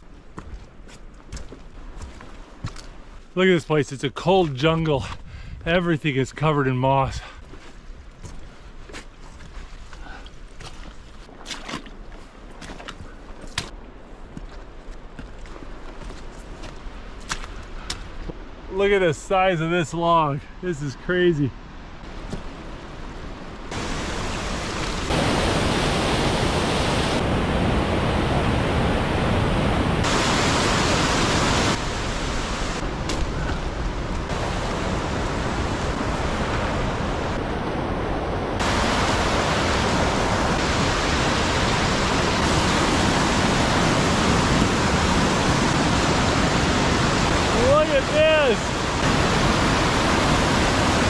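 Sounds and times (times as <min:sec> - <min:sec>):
rushing water: 0:10.6 - 0:51.0.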